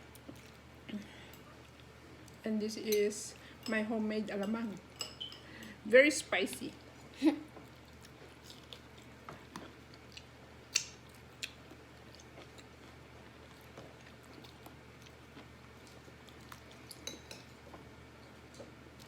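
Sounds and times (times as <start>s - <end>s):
person chewing food: 0.1s - 2.4s, 7.5s - 19.0s.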